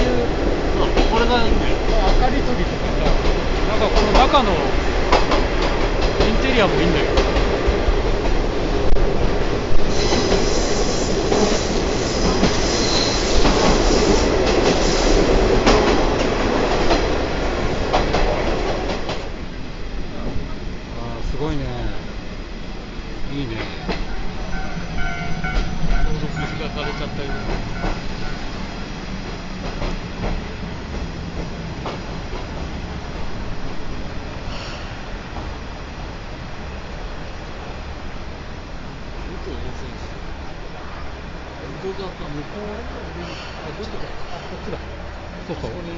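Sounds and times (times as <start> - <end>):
train wheels rumbling on rails: 0.0 - 45.9
wheel squeal: 9.9 - 15.1, 24.2 - 26.6.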